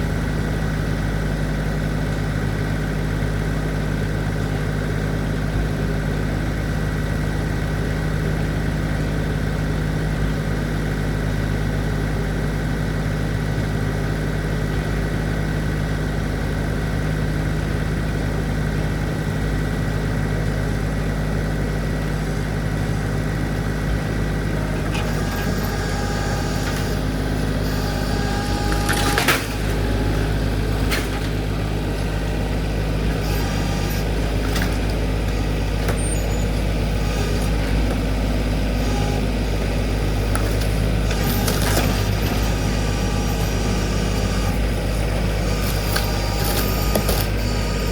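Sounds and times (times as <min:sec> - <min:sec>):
tractor engine running: 0:00.0 - 0:47.9
high squealing: 0:24.6 - 0:47.9.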